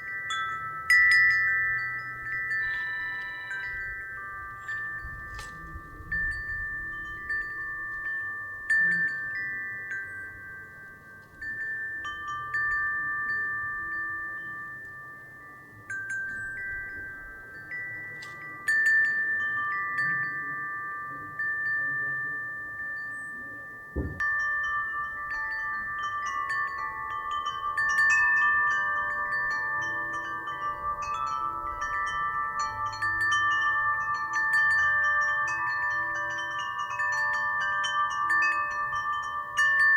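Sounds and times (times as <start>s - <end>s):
wind chimes ringing: 0.0s - 39.9s
sharp knock: 24.0s - 24.2s.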